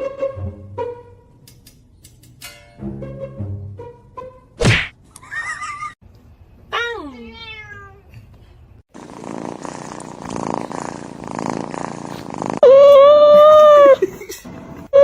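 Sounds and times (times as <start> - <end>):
cat purring: 8.9 - 12.6
cat meowing: 12.6 - 13.9.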